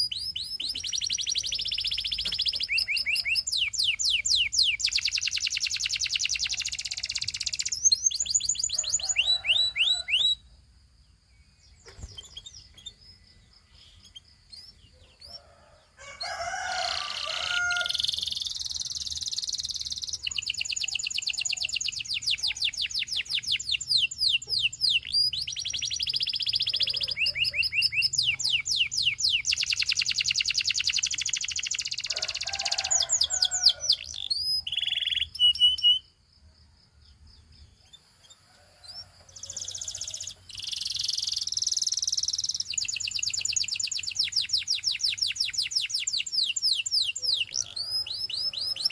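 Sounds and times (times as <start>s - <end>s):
canary singing trills: 0.0s - 10.5s, 11.1s - 36.2s, 37.1s - 48.9s
soft bird chirps: 0.0s - 36.2s, 37.0s - 48.9s.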